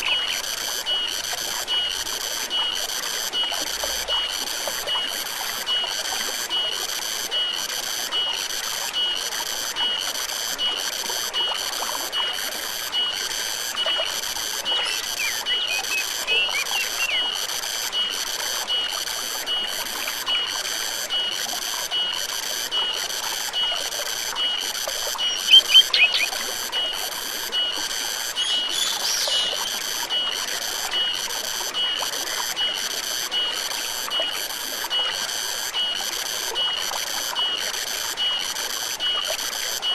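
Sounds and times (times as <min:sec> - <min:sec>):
short bird-like chirps: 0:00.0 - 0:00.4, 0:14.8 - 0:17.2, 0:25.2 - 0:26.4
pulsing high-pitched animal call: 0:00.0 - 0:00.7, 0:13.8 - 0:17.4, 0:25.0 - 0:26.6, 0:28.4 - 0:29.9
forest stream flowing: 0:00.0 - 0:39.9.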